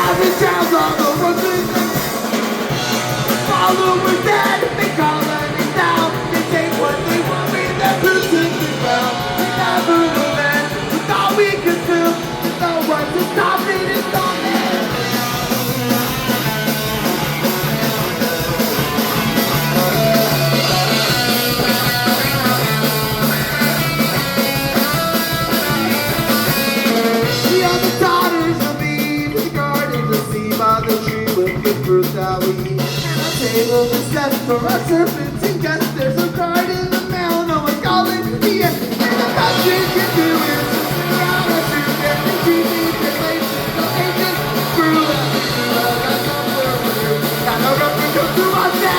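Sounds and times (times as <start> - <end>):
bass guitar: 0.0 - 48.9
drum kit and cymbals: 0.0 - 48.9
electric guitars: 0.0 - 48.9.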